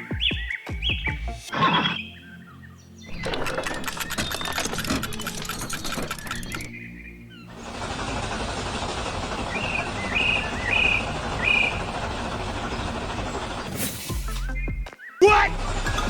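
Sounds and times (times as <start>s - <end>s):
steady noisy rumble: 7.5s - 14.4s.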